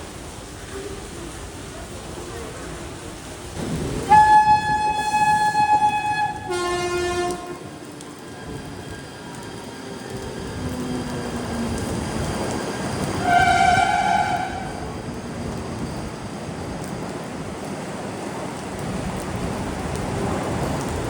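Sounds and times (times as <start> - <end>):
train rumbling on tracks: 0.0 - 21.0
train horn: 4.1 - 7.8, 13.2 - 14.9.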